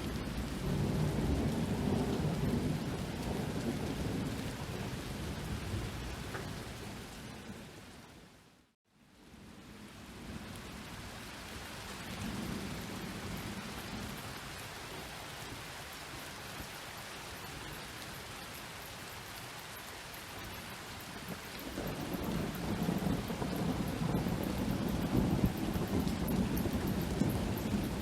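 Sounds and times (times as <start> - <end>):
rain pattering: 0.0 - 8.4, 9.1 - 28.0
thunder rolling: 21.6 - 28.0.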